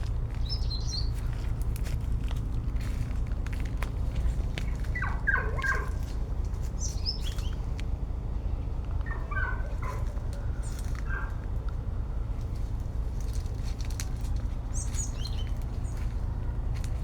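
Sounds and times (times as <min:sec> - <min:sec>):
steady low rumble: 0:00.0 - 0:17.0
short animal calls: 0:04.9 - 0:06.1.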